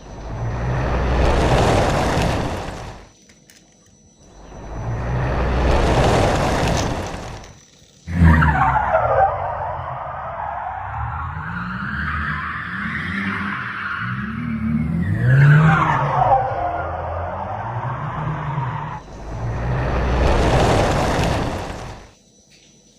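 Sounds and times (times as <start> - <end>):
car engine revving: 0.0 - 3.1
rushing whoosh: 18.9 - 22.1.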